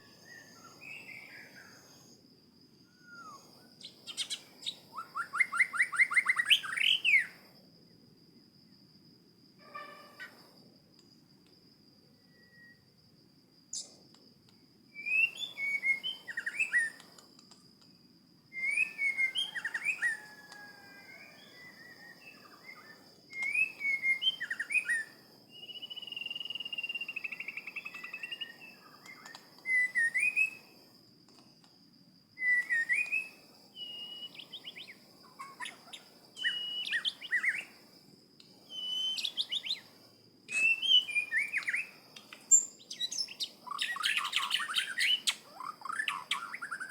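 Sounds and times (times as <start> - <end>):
songbird whistling: 0.0 - 2.2, 2.8 - 7.4, 12.2 - 12.9, 14.9 - 17.2, 18.5 - 30.8, 32.4 - 37.8, 38.6 - 39.9, 40.5 - 46.9.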